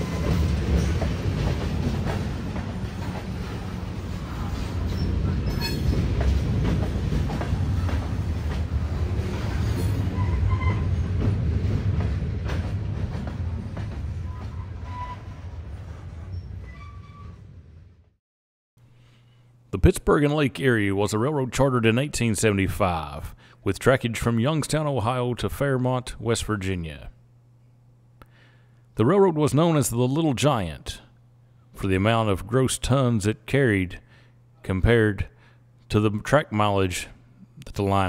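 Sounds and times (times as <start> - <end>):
train cars rumbling: 0.0 - 18.0.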